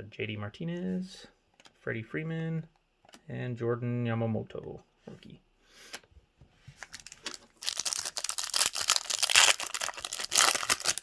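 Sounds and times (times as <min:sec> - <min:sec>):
wrapper crinkling: 0:06.8 - 0:11.0
foil pack tearing: 0:07.0 - 0:11.0.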